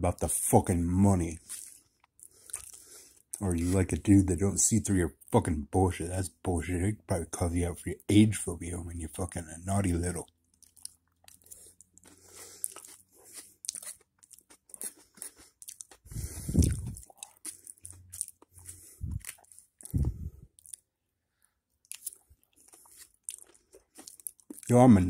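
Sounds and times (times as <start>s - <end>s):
man chewing with wet crunches: 1.4s - 4.0s, 10.0s - 25.0s.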